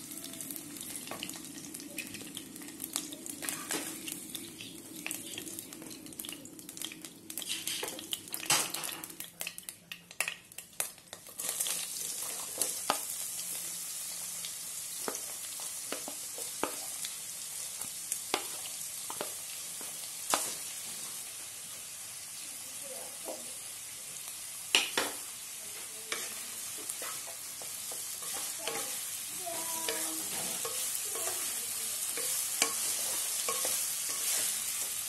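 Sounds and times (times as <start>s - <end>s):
onions sizzling in oil: 0.0s - 35.0s
hot oil spattering: 26.1s - 35.0s.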